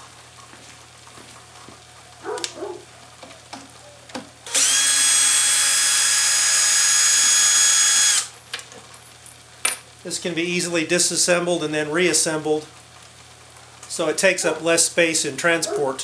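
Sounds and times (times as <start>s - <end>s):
power drill running: 4.5s - 8.3s.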